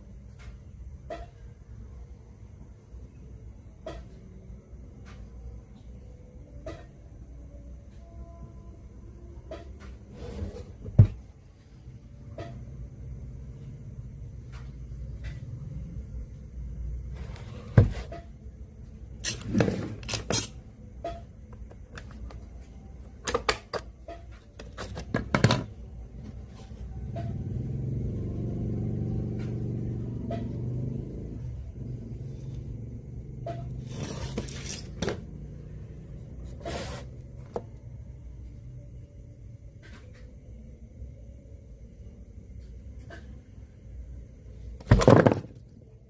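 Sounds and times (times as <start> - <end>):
low hum: 25.6 - 36.6.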